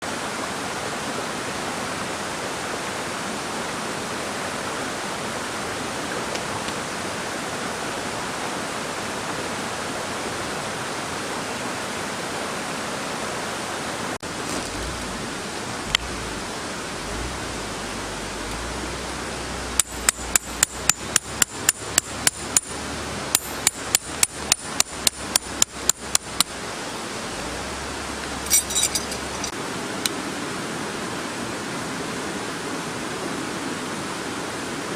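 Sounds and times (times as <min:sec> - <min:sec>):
steady rushing noise: 0:13.6 - 0:34.9
sharp hammer strikes: 0:19.8 - 0:26.5.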